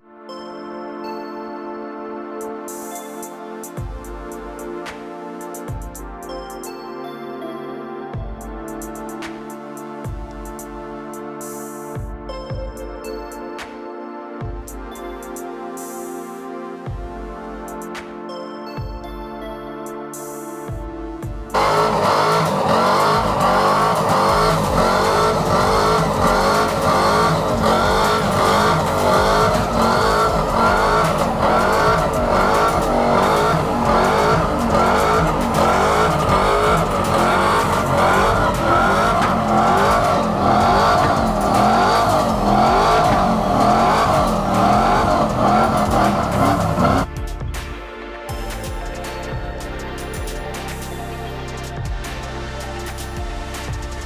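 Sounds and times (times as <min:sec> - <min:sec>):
truck engine revving hard: 0:21.5 - 0:47.1
tyres squealing: 0:21.6 - 0:47.1.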